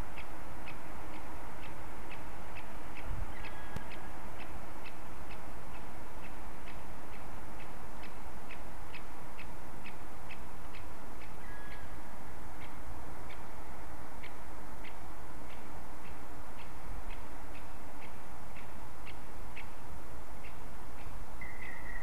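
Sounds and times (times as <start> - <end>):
steady background hiss: 0.0 - 22.0
bird giving sharp high calls: 21.4 - 22.0.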